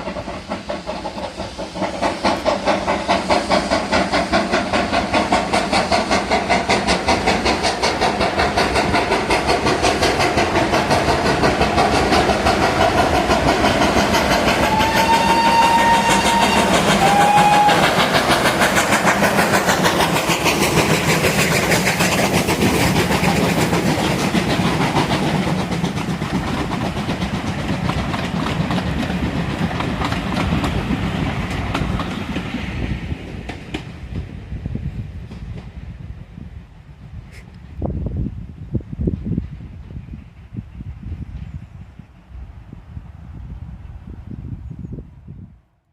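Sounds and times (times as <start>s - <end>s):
steam locomotive exhaust beat: 0.0s - 43.3s
train whistle blasts: 14.6s - 18.1s.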